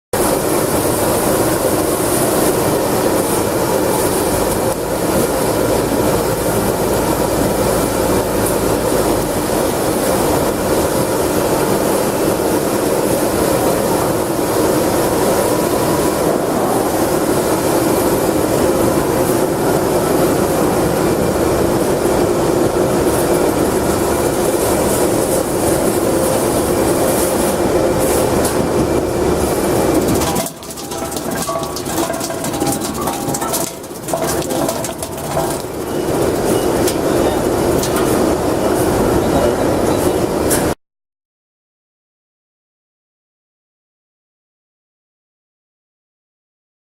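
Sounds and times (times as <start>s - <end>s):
slicing machine clattering: 28.4s - 38.4s.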